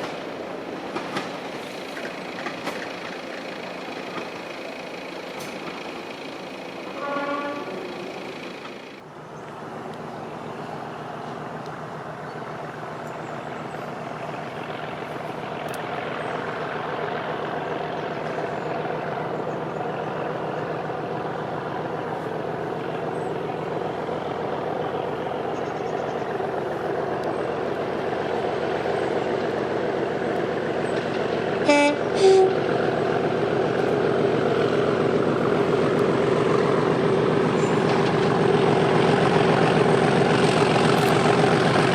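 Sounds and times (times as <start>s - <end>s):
diesel locomotive engine working hard: 0.0s - 41.9s
train horn blasts: 6.9s - 8.2s, 31.6s - 32.7s.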